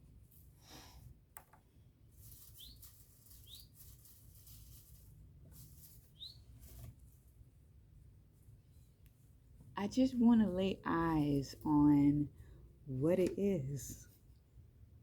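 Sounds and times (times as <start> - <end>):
rustling in dry leaves: 2.1 - 7.4.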